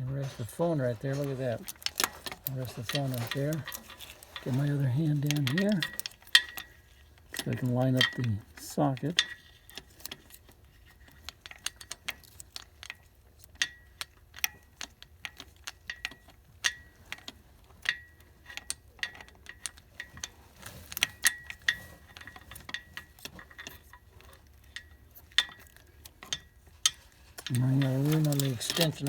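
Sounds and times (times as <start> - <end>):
metal socket clicking against engine: 0.8 - 19.9, 20.9 - 29.0.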